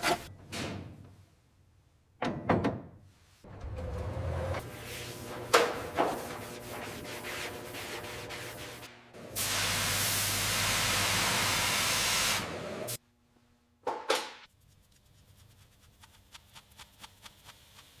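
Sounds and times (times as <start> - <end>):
steady spraying hiss: 4.8 - 13.0.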